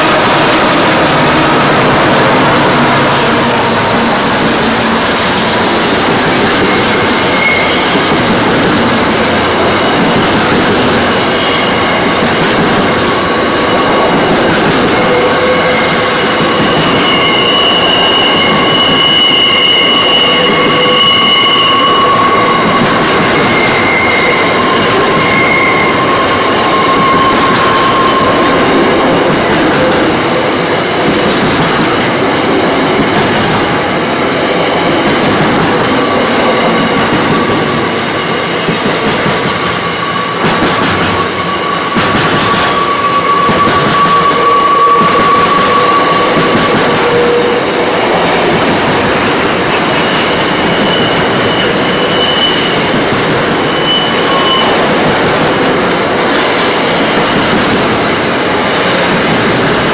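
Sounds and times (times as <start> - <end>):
steel wheels rumbling on rail: 0.0 - 59.9
high-pitched wheel squeal: 0.6 - 9.0, 11.2 - 30.2, 39.6 - 47.8, 49.3 - 57.2.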